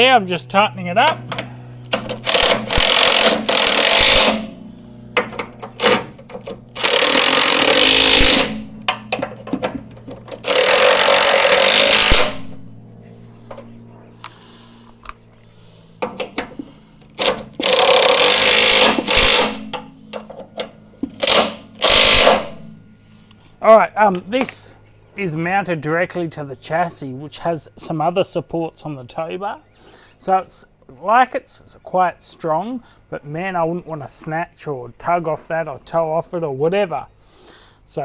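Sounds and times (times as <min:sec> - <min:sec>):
impact wrench tightening bolts: 0:01.4 - 0:04.5, 0:05.2 - 0:12.5, 0:16.0 - 0:22.6.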